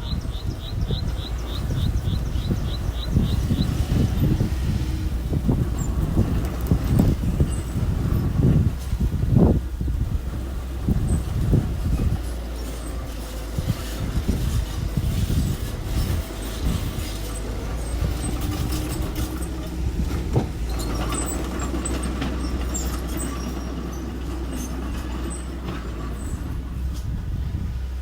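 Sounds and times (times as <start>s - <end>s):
earthmoving machine engine running: 0.0s - 28.0s
knocks and clanks: 15.9s - 26.2s.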